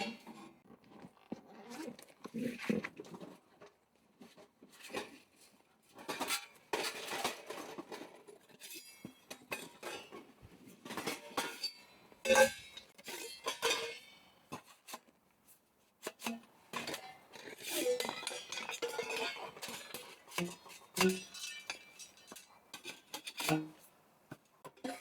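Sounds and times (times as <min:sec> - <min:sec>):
dishes and utensils clinking: 0:06.0 - 0:15.0, 0:16.1 - 0:23.8.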